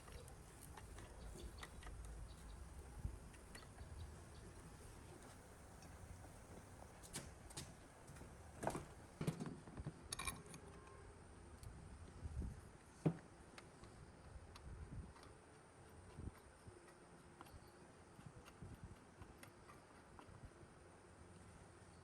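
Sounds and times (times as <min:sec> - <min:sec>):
small parts and hand tools clicking: 0:10.1 - 0:11.0.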